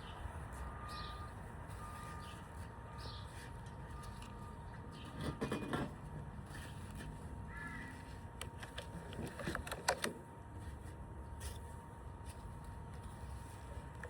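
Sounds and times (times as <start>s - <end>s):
outdoor background noise: 0.0s - 14.0s
bird calling: 7.5s - 8.1s.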